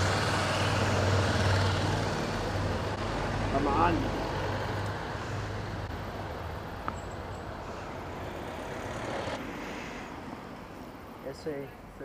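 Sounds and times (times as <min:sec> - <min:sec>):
steady traffic noise: 0:00.0 - 0:12.0.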